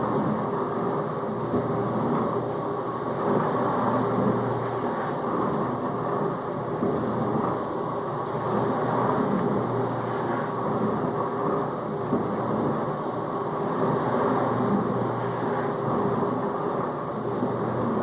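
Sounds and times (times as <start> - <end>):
low pump hum: 0.0 - 18.0.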